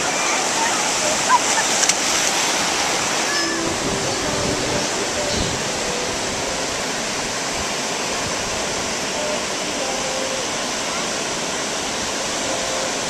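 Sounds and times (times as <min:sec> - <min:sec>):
surf: 0:00.0 - 0:13.0
wind buffeting microphone: 0:00.8 - 0:09.1.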